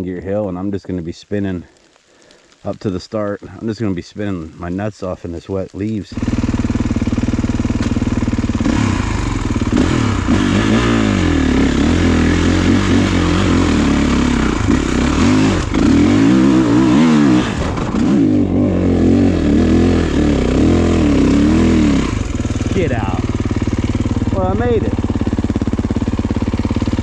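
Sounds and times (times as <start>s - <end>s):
motorcycle engine revving: 6.1s - 27.0s.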